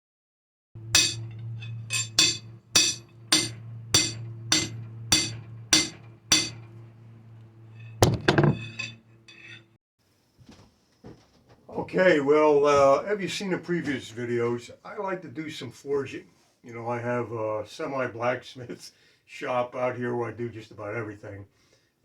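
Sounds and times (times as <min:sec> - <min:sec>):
low hum: 0:00.8 - 0:09.7
hammer striking steel on anvil: 0:00.9 - 0:06.7, 0:07.8 - 0:09.7
heavy metal clang and clatter: 0:00.9 - 0:06.8, 0:07.7 - 0:09.7.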